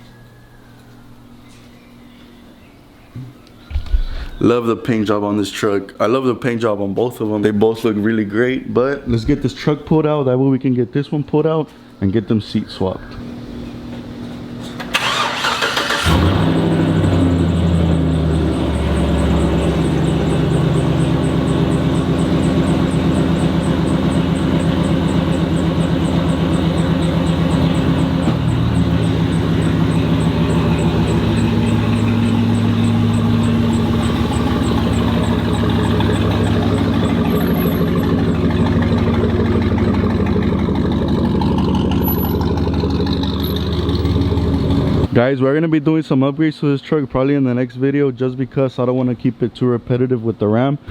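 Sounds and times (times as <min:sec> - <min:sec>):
pickup truck engine running: 0:15.0 - 0:45.2
faint fast high ticking: 0:16.4 - 0:45.1.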